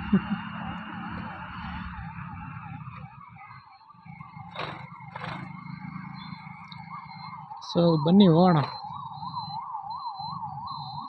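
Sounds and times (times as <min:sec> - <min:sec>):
low engine hum: 0:00.0 - 0:07.4
warbling siren: 0:00.0 - 0:11.0.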